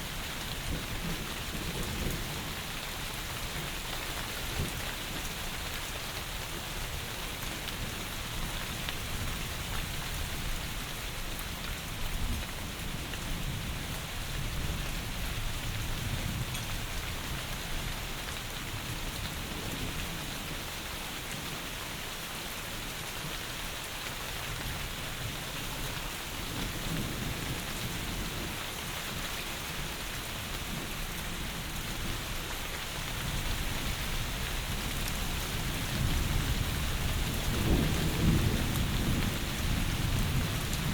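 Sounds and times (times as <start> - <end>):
heavy rain falling: 0.0 - 40.9
distant thunder rumbles: 35.6 - 40.9.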